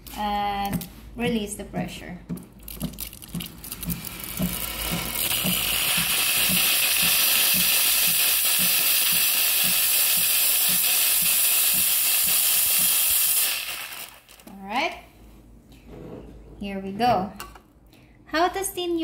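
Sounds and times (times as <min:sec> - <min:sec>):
steam wand hissing: 0:04.5 - 0:14.2.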